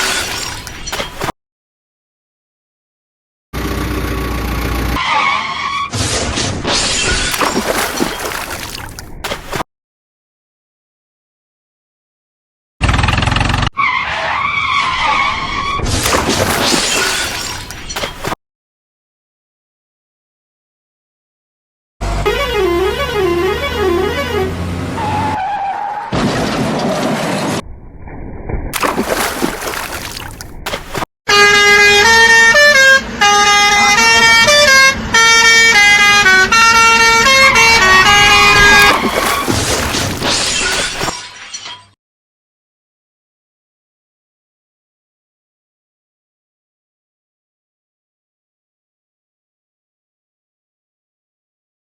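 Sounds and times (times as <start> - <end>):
crash with breaking glass: 0.0 - 1.3, 16.1 - 18.3, 38.8 - 42.0
tyres skidding screech: 5.0 - 6.2, 13.4 - 16.0, 22.9 - 27.6
musical horn playing a tune: 22.0 - 24.7.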